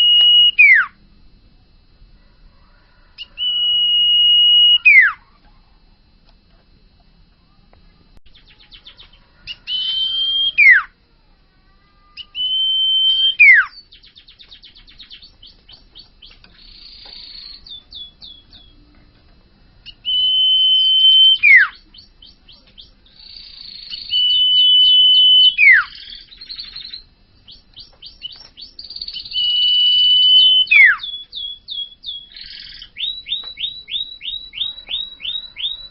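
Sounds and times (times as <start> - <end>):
bird whistling and rattling: 8.6 - 10.8, 20.0 - 35.9.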